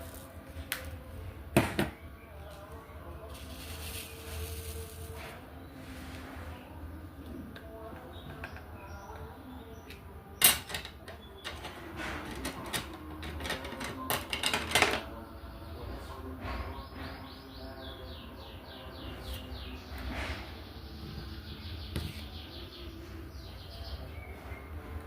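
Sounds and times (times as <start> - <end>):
plastic tools clicking and tapping: 9.9 - 15.1
bird chirping: 15.1 - 25.0.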